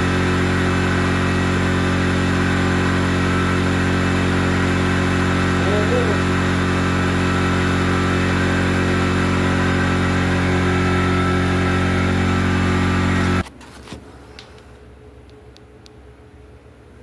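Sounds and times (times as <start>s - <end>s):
motor humming: 0.0s - 13.4s.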